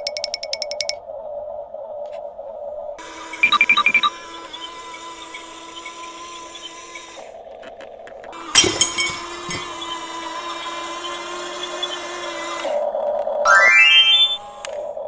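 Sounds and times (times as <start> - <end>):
steady held tones: 2.8 - 7.4, 8.3 - 12.8, 13.5 - 15.0
crash with clinking ring: 8.6 - 9.6.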